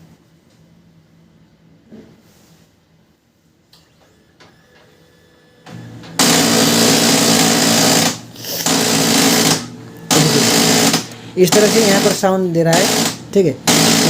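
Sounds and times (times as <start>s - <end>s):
printer grinding noise: 4.8s - 14.0s.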